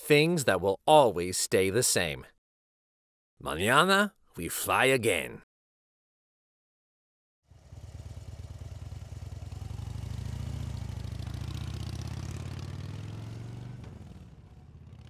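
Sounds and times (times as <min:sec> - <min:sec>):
motorcycle engine rumbling: 0:07.5 - 0:15.0.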